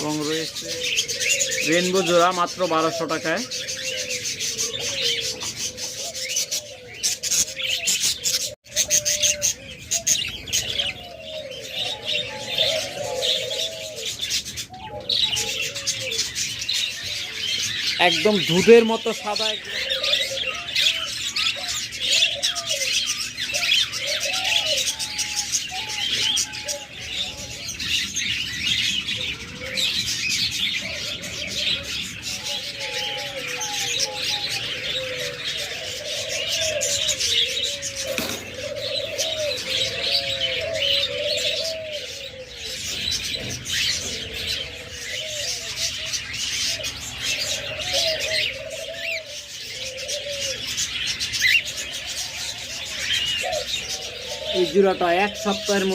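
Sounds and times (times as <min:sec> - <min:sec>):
doves cooing: 0:00.0 - 0:55.9
small birds chirping: 0:00.0 - 0:55.9.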